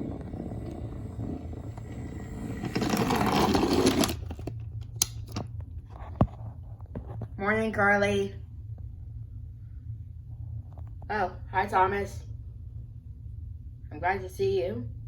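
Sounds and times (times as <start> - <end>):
small motor whirring: 0.0 - 4.5.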